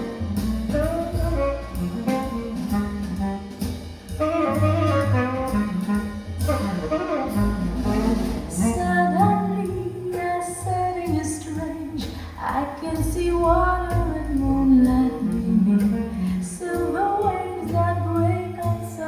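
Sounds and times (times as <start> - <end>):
saxophone melody: 0.0 - 10.1
jazz band accompaniment: 0.0 - 19.0.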